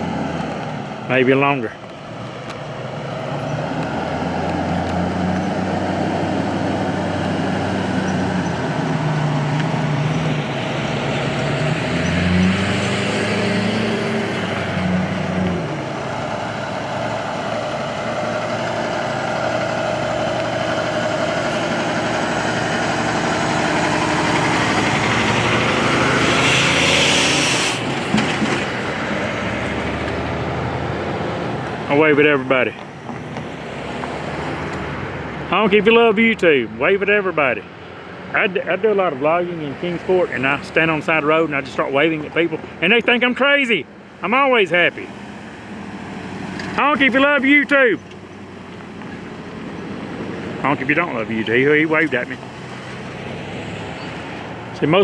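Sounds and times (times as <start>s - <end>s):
highway traffic passing: 0.0s - 55.0s.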